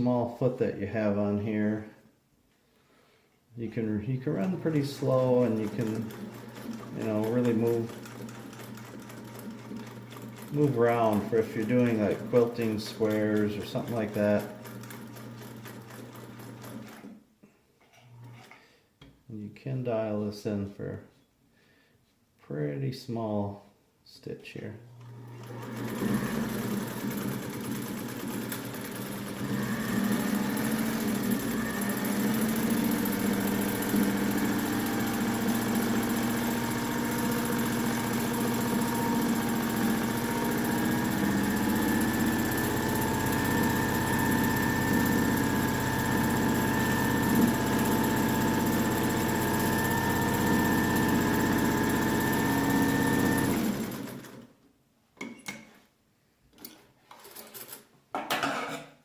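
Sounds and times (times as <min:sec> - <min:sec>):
sewing machine stitching: 0:04.3 - 0:17.2, 0:25.0 - 0:54.5, 0:56.6 - 0:57.9.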